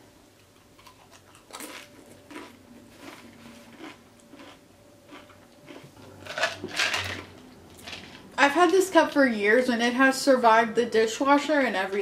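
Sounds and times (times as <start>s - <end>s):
person chewing food: 0.4s - 6.3s.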